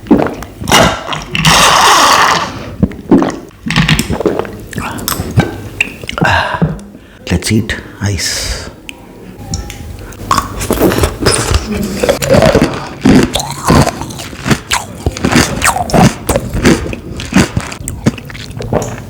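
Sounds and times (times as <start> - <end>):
ice cubes crunched by teeth: 12.2 - 18.6.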